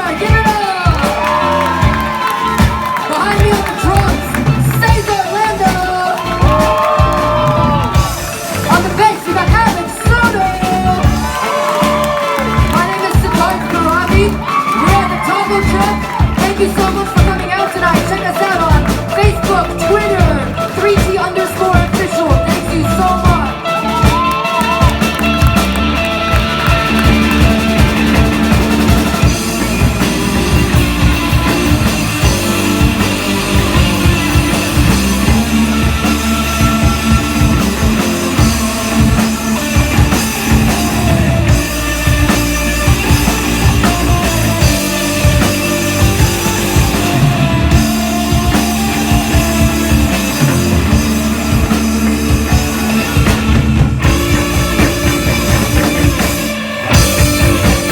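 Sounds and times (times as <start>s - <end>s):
rock band playing instrumental: 0.0s - 57.9s.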